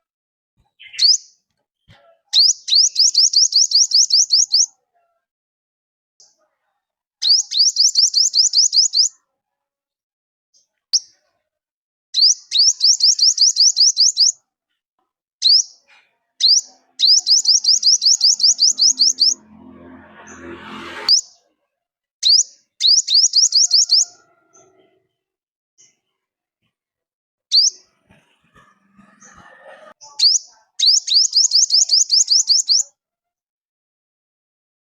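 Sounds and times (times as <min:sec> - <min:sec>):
bird whistling song: 0:00.8 - 0:01.3, 0:02.4 - 0:04.7, 0:07.2 - 0:09.1, 0:12.2 - 0:14.4, 0:15.4 - 0:15.8, 0:16.4 - 0:19.4, 0:22.2 - 0:24.2, 0:27.5 - 0:27.8, 0:30.2 - 0:32.9
rising swish with low hum: 0:18.1 - 0:21.2.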